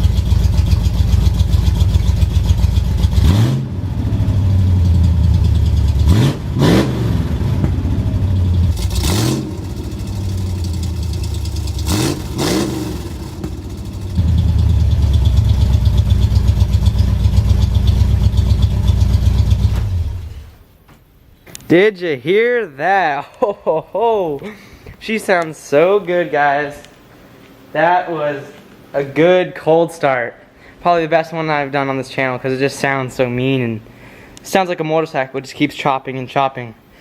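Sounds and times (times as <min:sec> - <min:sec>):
loud choppy engine idle and revs: 0:00.0 - 0:20.5.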